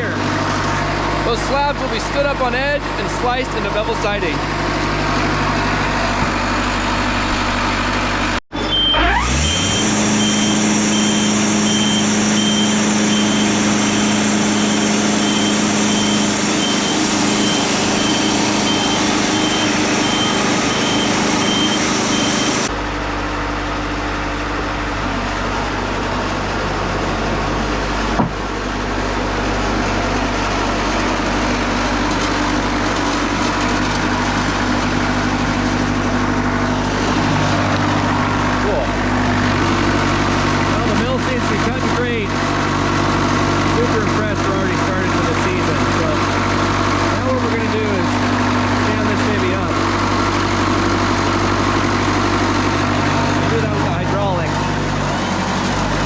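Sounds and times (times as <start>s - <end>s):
machine humming: 3.6s - 22.9s, 54.5s - 56.0s
electronic reversing beeps: 8.6s - 22.7s, 54.8s - 56.0s
engine idling low: 10.0s - 56.0s.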